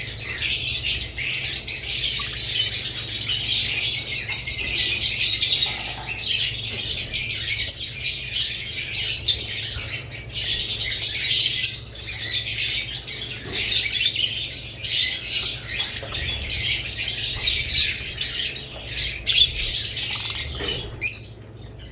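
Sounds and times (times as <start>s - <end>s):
birds chattering and squawking: 0.0s - 21.9s.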